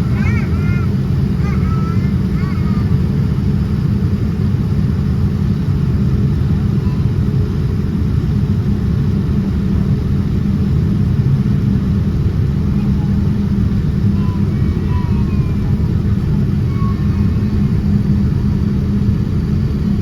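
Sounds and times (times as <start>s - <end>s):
airplane cabin engine rumble: 0.0s - 20.0s.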